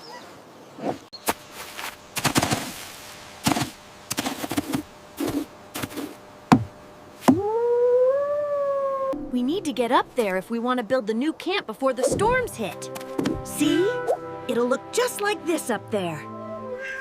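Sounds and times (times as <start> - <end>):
sharp knocks and clattering hits: 3.5 - 7.4, 12.1 - 13.5.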